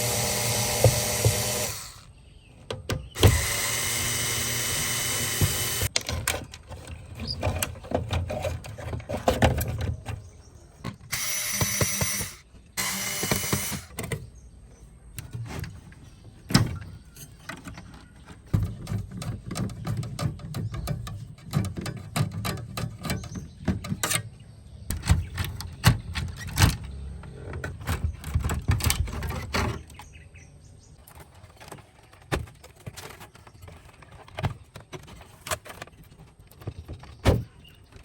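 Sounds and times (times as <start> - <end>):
small power tool running: 0.0 - 2.1, 3.2 - 5.9, 11.1 - 13.9
parts clicking and knocking: 0.0 - 30.2.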